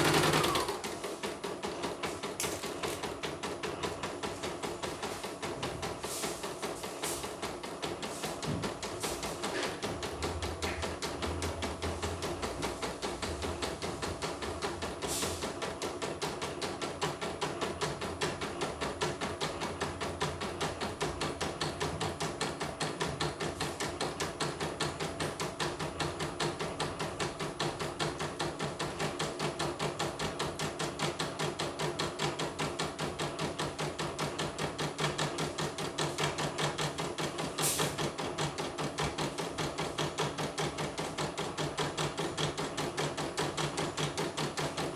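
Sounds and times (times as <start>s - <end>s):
embroidery machine needle clattering: 0.0s - 0.9s.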